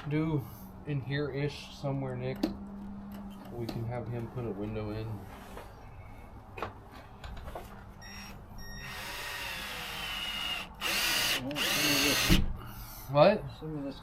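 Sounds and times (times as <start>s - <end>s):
power drill whining: 8.0s - 13.0s.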